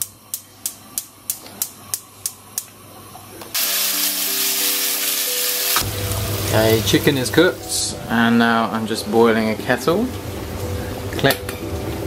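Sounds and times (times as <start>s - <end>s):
chicken sizzling in a frying pan: 3.6s - 7.6s
background music: 3.6s - 12.0s.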